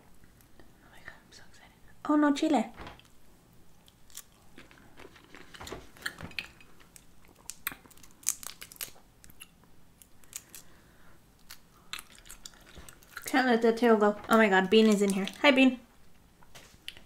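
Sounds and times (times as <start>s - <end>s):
person chewing shrimp: 3.8s - 10.8s, 11.4s - 13.3s.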